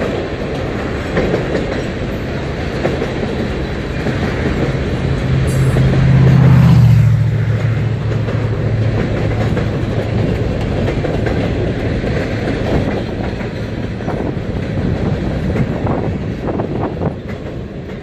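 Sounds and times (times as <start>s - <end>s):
train wheels rumbling on rail: 0.0s - 18.0s
wheels clacking over rail joints: 0.0s - 18.0s
low drone: 3.7s - 10.8s.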